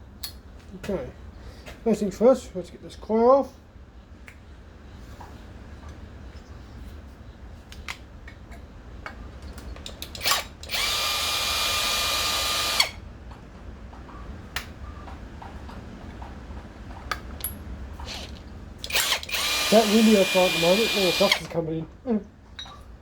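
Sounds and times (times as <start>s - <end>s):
parts clicking and knocking: 7.7s - 21.6s
power drill running: 10.2s - 13.0s, 18.0s - 21.6s.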